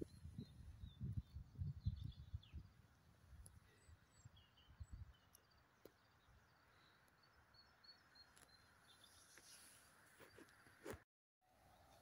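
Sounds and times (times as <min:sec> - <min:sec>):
faint high bird chirps: 0:00.0 - 0:02.8.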